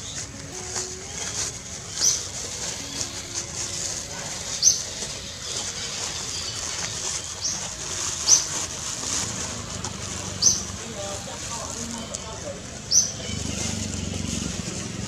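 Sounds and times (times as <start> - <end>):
high-pitched bird chirps: 1.9 - 2.3, 4.5 - 8.5, 10.4 - 10.7, 12.9 - 13.4.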